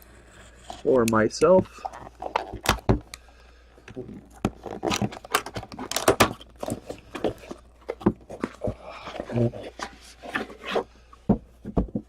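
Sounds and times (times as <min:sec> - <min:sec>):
packaging crinkling and tearing: 0:04.0 - 0:09.9.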